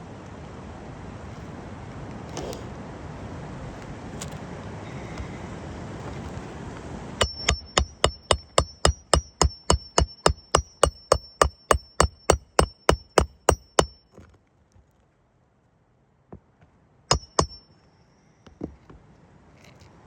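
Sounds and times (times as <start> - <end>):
hammer striking roofing nail: 7.2 - 14.0, 17.1 - 17.7.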